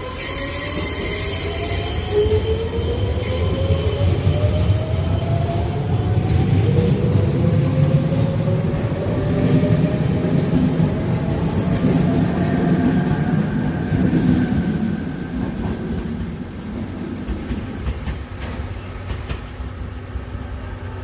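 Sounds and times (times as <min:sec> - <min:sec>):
wheels clattering on rail: 0:17.1 - 0:19.7.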